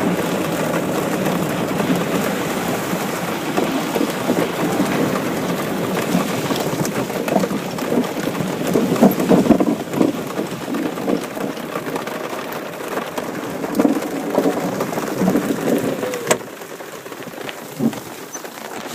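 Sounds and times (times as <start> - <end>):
rain falling: 0.0 - 18.9
rumbling thunder: 13.2 - 16.5.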